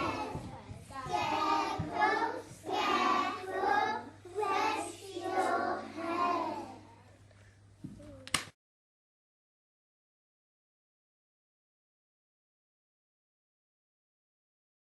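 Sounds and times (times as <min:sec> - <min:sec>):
young children singing: 0:00.0 - 0:06.9.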